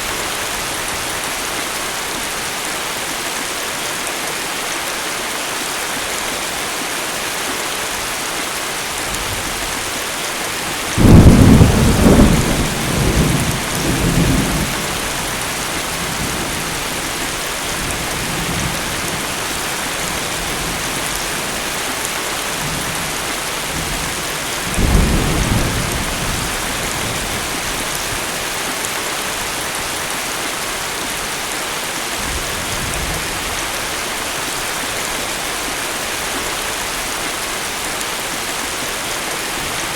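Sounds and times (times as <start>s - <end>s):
heavy rain falling: 0.0s - 39.9s
thunder crack rolling: 11.0s - 15.0s.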